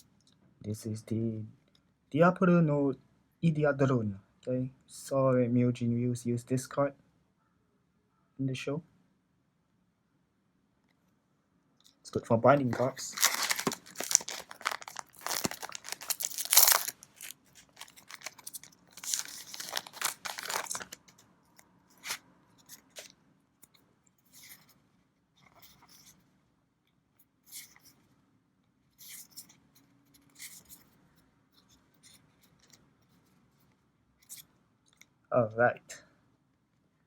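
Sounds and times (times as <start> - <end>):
foil pack crinkling and tearing: 12.5 - 21.1, 22.0 - 22.2
cards rustling and clicking: 12.5 - 21.2, 21.9 - 23.2.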